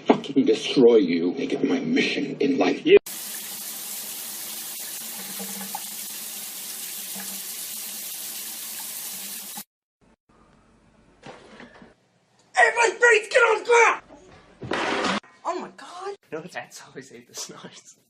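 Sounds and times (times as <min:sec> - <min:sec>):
running water rushing: 0:03.1 - 0:09.7.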